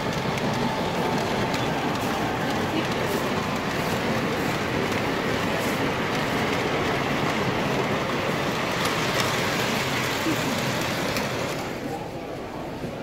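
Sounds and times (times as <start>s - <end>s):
crowded hall noise: 0.0s - 13.0s
model trains rumbling: 0.0s - 13.0s.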